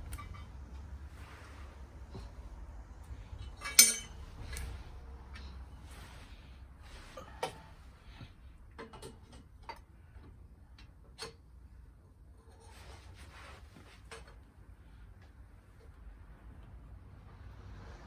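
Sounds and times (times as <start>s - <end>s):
metal pipes clinking and tapping: 3.3s - 4.7s, 8.7s - 9.9s.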